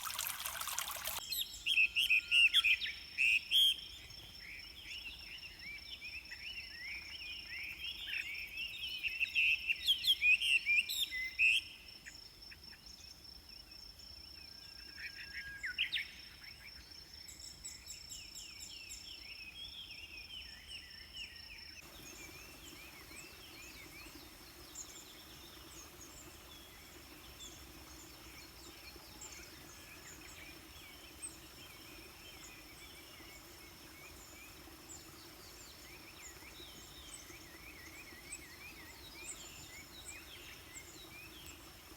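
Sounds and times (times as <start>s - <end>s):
birds chirping: 0.0s - 1.2s, 21.8s - 41.9s.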